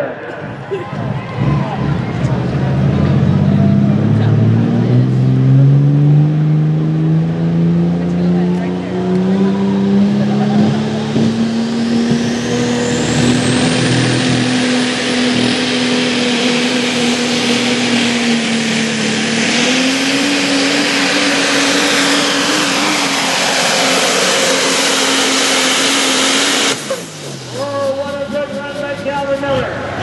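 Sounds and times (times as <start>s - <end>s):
diesel pickup engine at full throttle: 0.0s - 30.0s
dense rushing noise: 9.4s - 30.0s.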